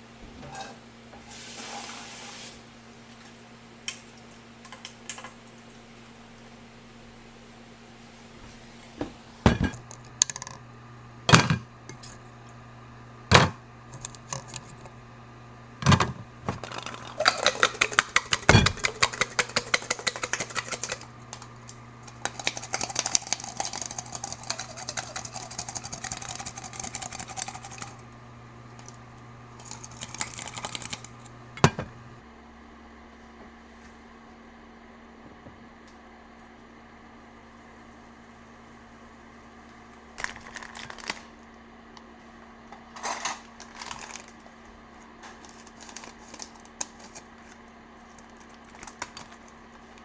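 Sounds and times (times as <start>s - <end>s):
steady low hum: 8.7s - 32.2s
utensils and pots knocking: 9.5s - 10.0s, 15.8s - 21.1s, 29.8s - 32.2s.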